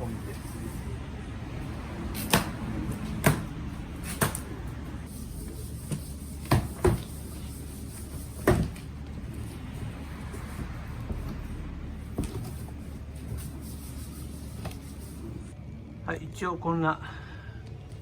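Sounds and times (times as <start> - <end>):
steady low hum: 0.0 - 18.0
metal knocks and clunks: 8.0 - 13.5.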